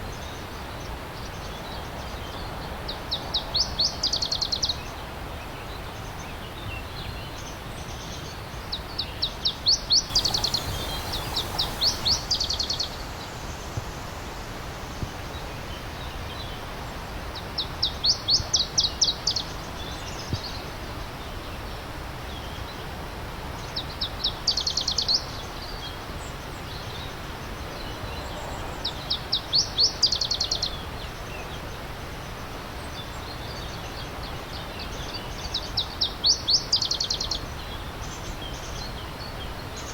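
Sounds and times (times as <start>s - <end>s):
stream rushing: 10.1s - 16.0s.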